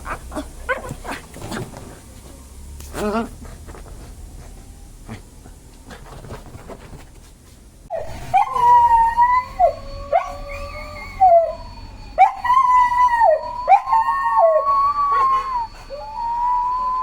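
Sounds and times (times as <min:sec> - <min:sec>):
dog howling: 0:07.9 - 0:17.0.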